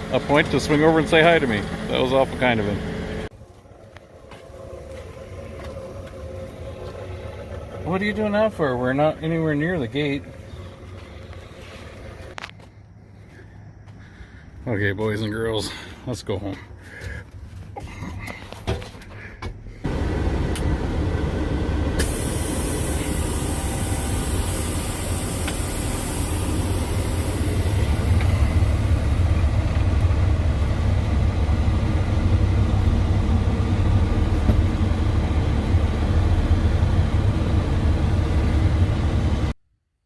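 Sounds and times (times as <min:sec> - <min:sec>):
truck diesel engine drone: 0:00.0 - 0:12.5, 0:19.8 - 0:39.6
road noise: 0:00.0 - 0:17.7, 0:19.8 - 0:39.6
high hiss: 0:22.0 - 0:29.1.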